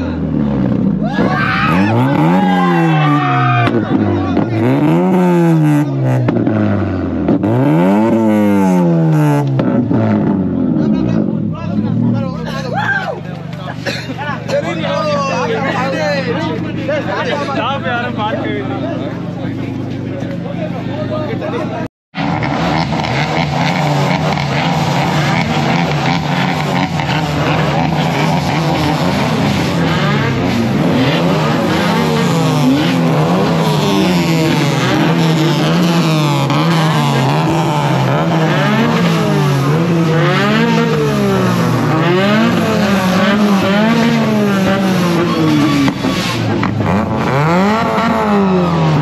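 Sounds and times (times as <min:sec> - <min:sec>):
car engine revving: 0:00.0 - 0:12.7, 0:14.9 - 0:49.0.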